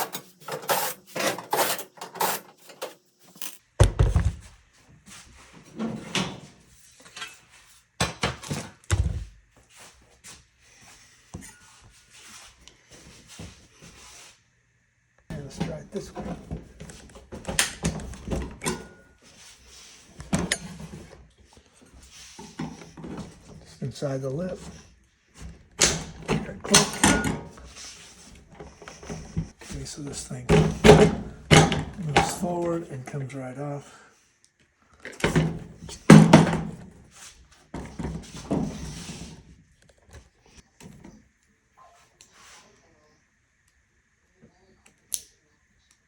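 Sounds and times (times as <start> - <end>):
panels clacking: 0.0 - 3.6
panels scraping: 0.0 - 3.6.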